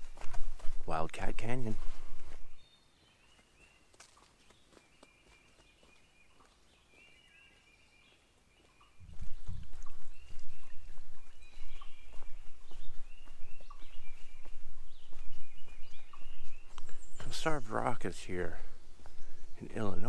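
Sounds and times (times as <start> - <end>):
songbirds chirping: 0.0 - 20.0
low rumble on microphone: 9.0 - 17.3.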